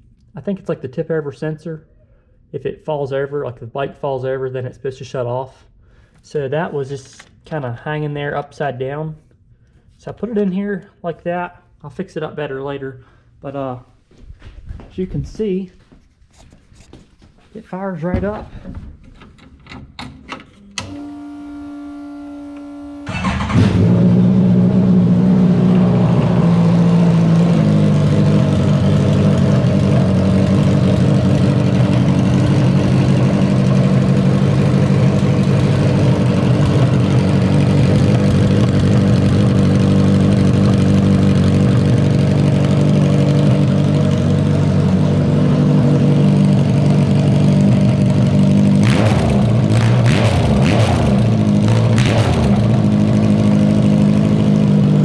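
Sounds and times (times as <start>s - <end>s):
starter whine: 19.4s - 55.0s
motorcycle engine idling: 23.1s - 50.2s, 51.1s - 55.0s.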